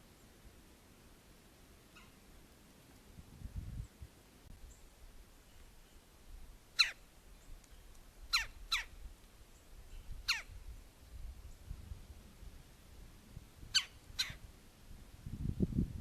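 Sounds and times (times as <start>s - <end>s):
bird calling: 1.9s - 2.2s, 6.8s - 7.0s, 8.3s - 9.0s, 10.0s - 10.6s, 13.7s - 14.4s.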